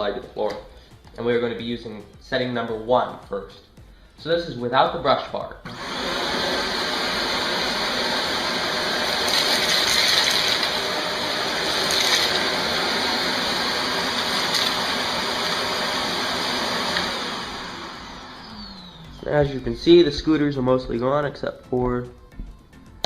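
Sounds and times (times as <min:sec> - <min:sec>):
vacuum picking up cereal: 0:05.7 - 0:19.6
vacuum cleaner running: 0:05.7 - 0:20.8.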